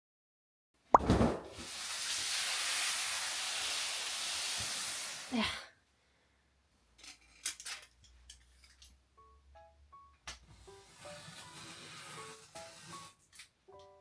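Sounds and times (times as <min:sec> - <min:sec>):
steady hiss: 0:01.6 - 0:05.4.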